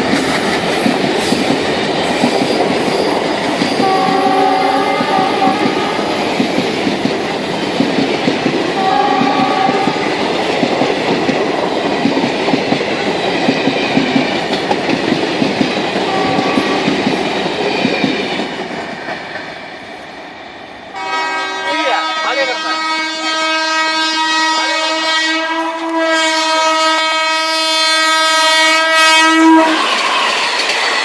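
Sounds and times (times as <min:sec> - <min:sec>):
train wheels clattering on rails: 0:00.0 - 0:20.5, 0:29.6 - 0:31.0
train horn: 0:03.8 - 0:06.2, 0:08.8 - 0:10.2, 0:16.0 - 0:17.0, 0:20.9 - 0:30.2.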